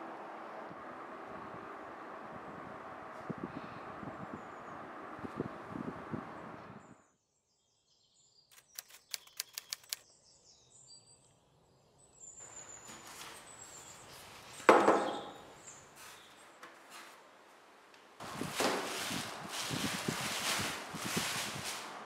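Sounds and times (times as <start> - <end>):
faint high bird chirps: 6.8 - 16.4
sharp clicks: 8.5 - 10.0.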